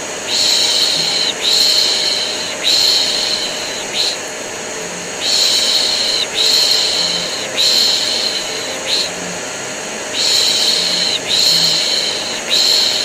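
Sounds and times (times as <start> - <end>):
vacuum cleaner running: 0.0 - 13.0
person shushing: 0.3 - 4.2, 5.0 - 13.0.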